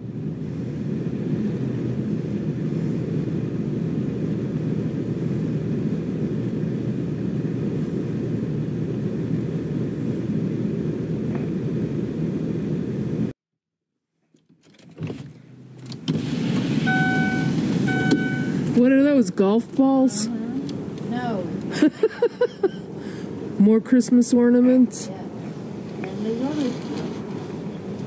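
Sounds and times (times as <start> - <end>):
car engine idling: 15.1 - 28.0.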